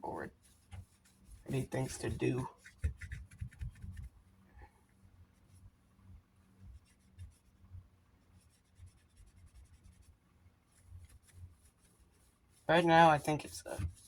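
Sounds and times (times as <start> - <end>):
scratching and rubbing handling: 0.1 - 4.5, 6.5 - 14.0
soft low thuds: 2.0 - 4.2.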